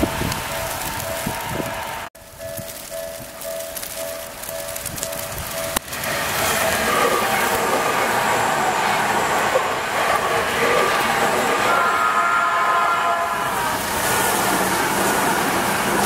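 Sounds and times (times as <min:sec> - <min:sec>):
level crossing warning bell: 0:00.0 - 0:12.2
train wheels rushing on rails: 0:00.0 - 0:16.0.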